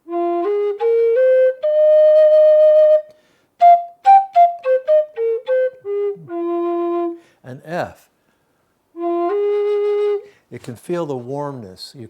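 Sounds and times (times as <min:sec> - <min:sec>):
solo flute playing: 0:00.0 - 0:07.3, 0:08.9 - 0:10.4.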